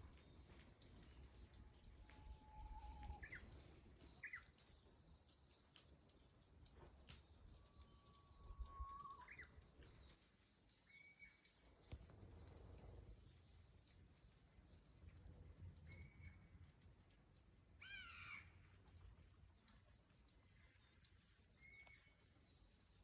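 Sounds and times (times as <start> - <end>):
faint clicks: 0.0 - 13.1
songbird singing: 0.0 - 15.0.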